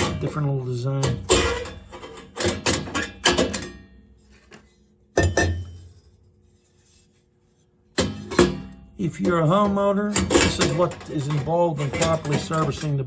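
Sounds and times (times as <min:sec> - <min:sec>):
metal parts clinking: 0:01.0 - 0:03.8, 0:09.3 - 0:13.0.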